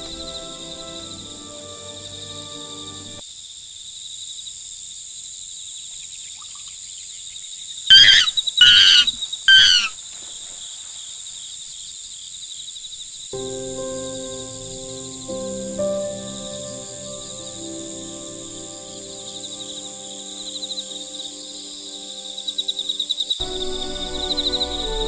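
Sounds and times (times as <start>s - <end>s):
crickets trilling: 0.0s - 5.9s, 7.0s - 25.0s
animal calling loudly: 7.9s - 10.0s.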